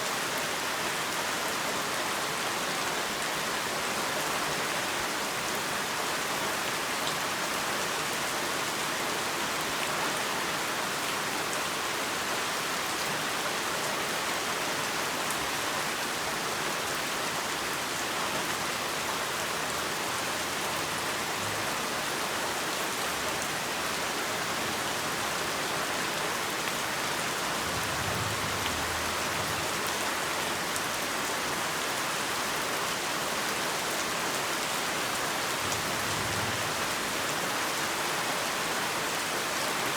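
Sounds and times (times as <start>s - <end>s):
heavy rain hissing: 26.1s - 31.5s
faint low rumble: 27.5s - 29.8s.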